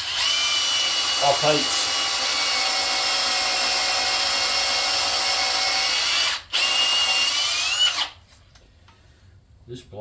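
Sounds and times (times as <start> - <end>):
cordless drill labouring: 0.0 - 8.2.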